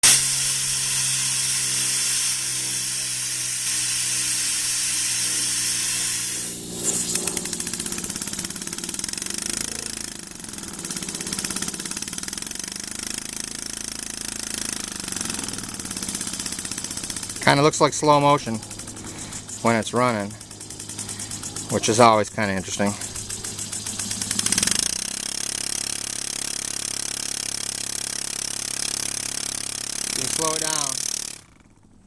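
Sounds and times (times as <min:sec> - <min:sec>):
steady hiss: 0:00.0 - 0:10.4, 0:14.8 - 0:26.4
low hum: 0:00.0 - 0:27.1
model steam engine puffing: 0:00.0 - 0:31.8.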